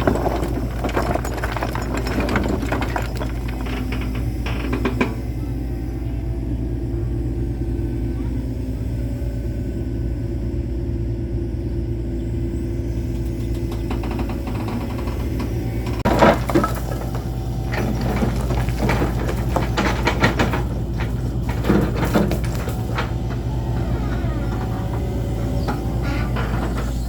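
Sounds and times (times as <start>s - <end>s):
sharp knocks and clatter: 0.0s - 5.4s, 13.2s - 27.0s
low mechanical rumble: 0.0s - 27.0s.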